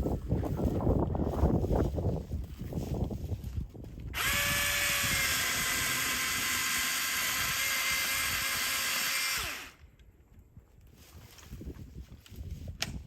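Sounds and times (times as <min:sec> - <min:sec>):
electric chainsaw whining: 0:04.2 - 0:09.8.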